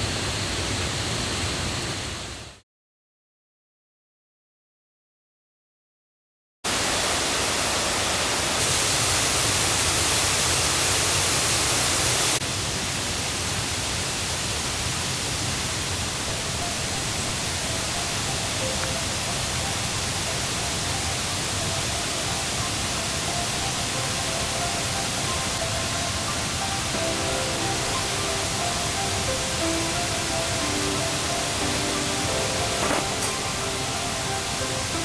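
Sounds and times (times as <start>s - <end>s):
river water rushing: 16.3s - 35.0s.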